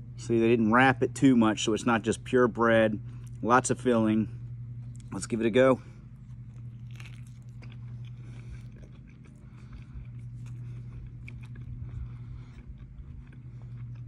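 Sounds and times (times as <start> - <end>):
low hum: 0.0 - 14.0
person chewing food: 6.0 - 14.0.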